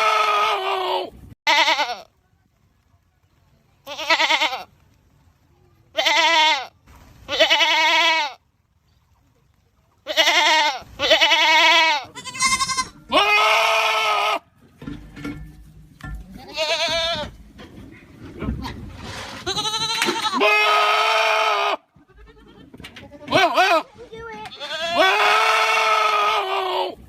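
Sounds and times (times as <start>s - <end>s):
goats screaming: 0.0s - 2.0s, 10.1s - 14.4s, 19.4s - 22.6s, 24.6s - 27.0s.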